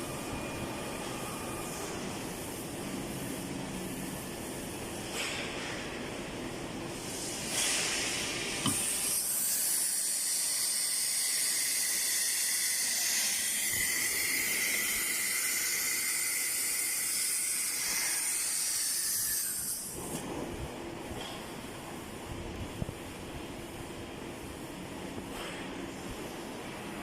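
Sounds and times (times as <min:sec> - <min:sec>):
cnc router cutting hiss: 0:00.0 - 0:20.3.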